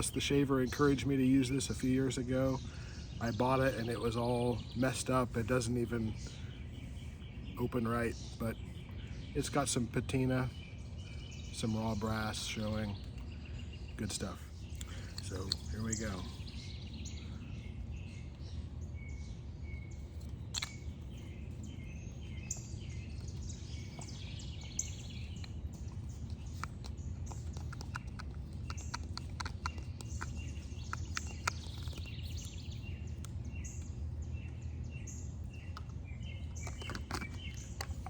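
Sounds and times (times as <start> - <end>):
songbirds chirping: 0.0 - 38.0
small sharp ticks: 22.5 - 33.9.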